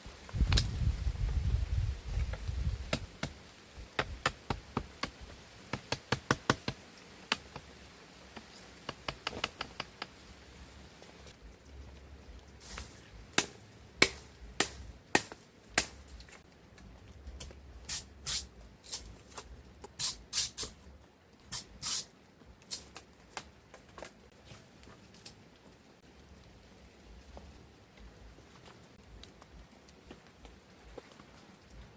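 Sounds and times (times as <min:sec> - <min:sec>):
sharp knocks and clicks: 0:04.0 - 0:07.7, 0:08.8 - 0:10.2.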